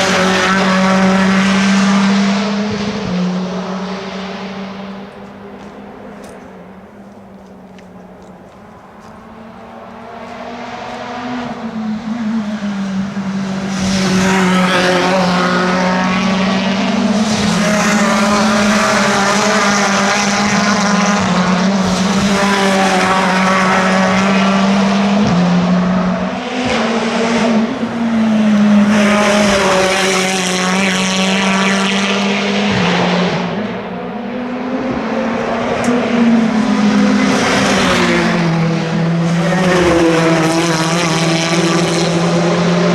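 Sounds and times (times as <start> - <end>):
race cars passing at speed: 0.0 - 42.9.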